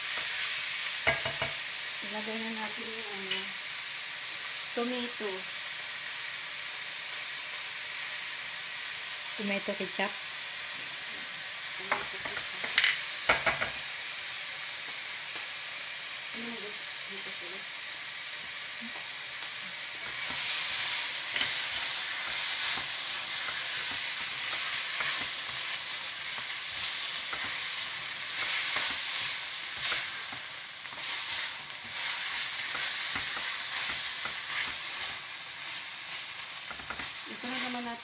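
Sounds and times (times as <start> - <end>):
chicken sizzling in a pan: 0.0 - 38.0
spatula scraping and tapping: 21.3 - 25.7, 26.3 - 27.7, 28.3 - 35.2, 36.6 - 37.7.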